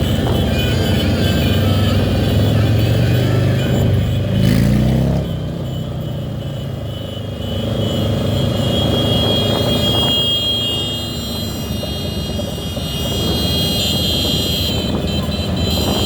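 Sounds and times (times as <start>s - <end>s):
engine revving: 0.0s - 5.9s
vehicle engines in traffic: 0.0s - 16.0s.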